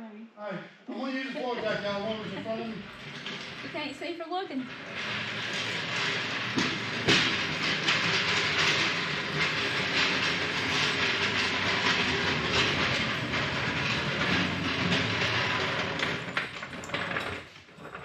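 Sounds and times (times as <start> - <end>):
floor jack rattling on concrete: 1.4 - 18.0.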